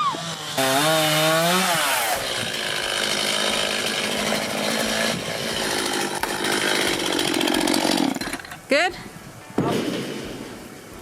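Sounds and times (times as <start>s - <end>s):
chainsaw cutting tree: 0.0s - 8.4s.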